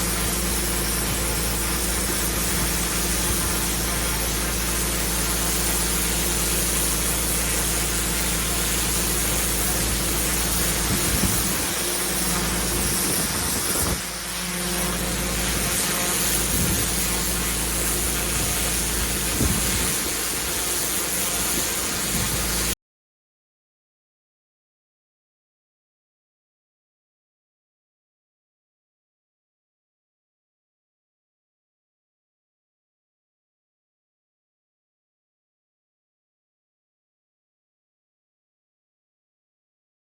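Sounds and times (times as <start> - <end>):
pressure washer engine: 0.0 - 22.8
water spray hissing: 0.0 - 22.8.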